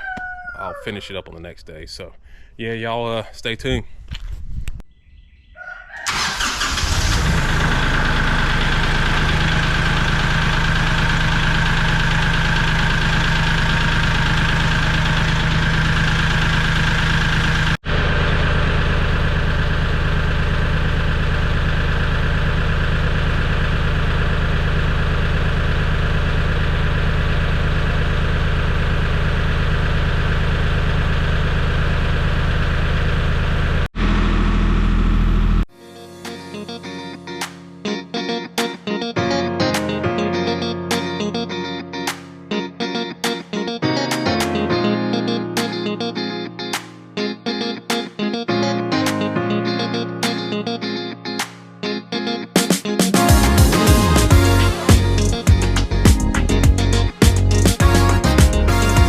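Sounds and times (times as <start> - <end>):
tractor diesel engine running: 6.0 - 35.7, 53.2 - 59.0.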